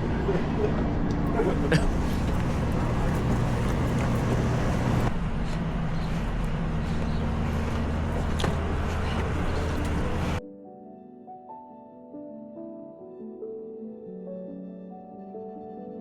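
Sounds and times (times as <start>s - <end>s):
vehicle engine running: 0.0s - 10.4s
soft piano music: 8.2s - 16.0s.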